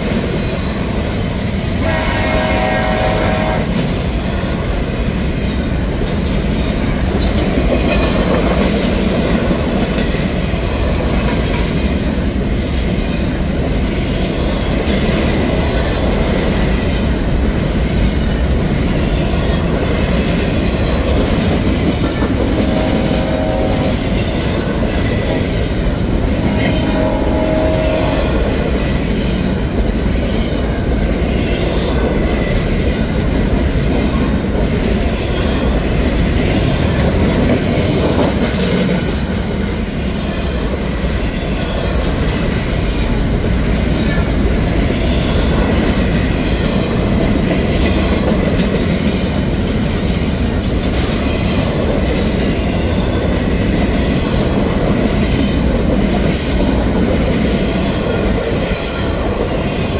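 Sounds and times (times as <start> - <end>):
freight train wheels clattering: 0.0 - 59.9
held horn tones: 26.5 - 28.4.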